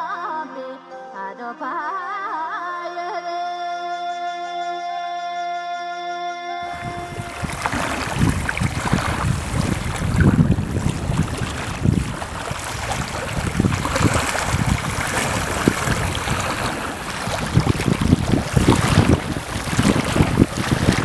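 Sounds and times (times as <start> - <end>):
wind buffeting microphone: 6.6 - 21.0.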